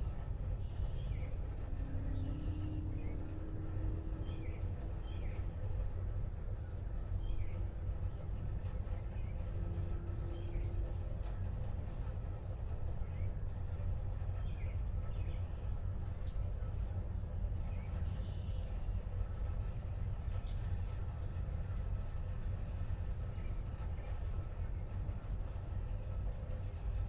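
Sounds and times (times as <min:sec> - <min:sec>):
light rain: 0:00.0 - 0:27.0
low rumble: 0:00.0 - 0:27.0.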